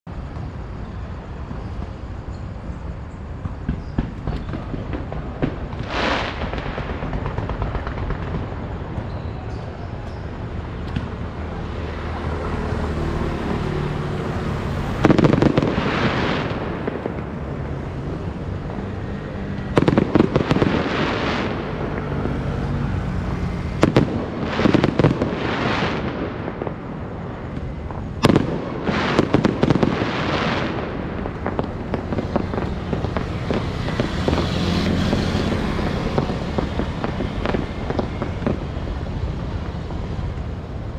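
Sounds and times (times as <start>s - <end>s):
fireworks crackling: 0.1s - 40.9s
firework bang: 3.2s - 40.9s
steady low rumble: 14.1s - 40.9s.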